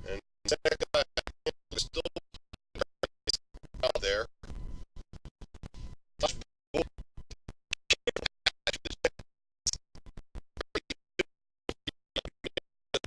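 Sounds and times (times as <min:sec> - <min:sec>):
choppy glitching audio fragments: 0:00.0 - 0:13.0.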